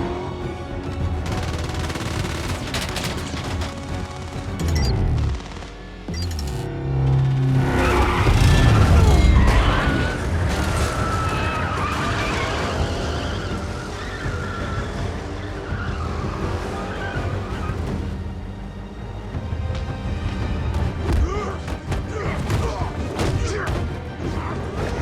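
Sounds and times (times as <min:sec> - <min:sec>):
film music score: 0:00.0 - 0:25.0
tyres screeching: 0:07.6 - 0:18.0.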